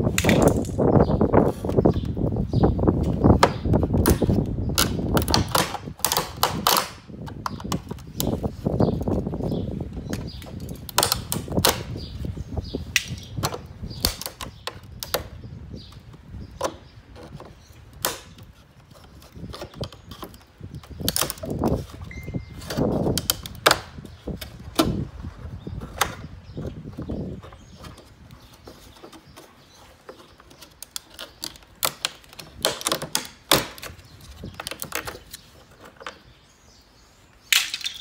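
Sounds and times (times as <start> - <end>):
plastic rubbing and rustling: 0.0 - 36.4
plastic trim clicks and knocks: 30.5 - 36.2.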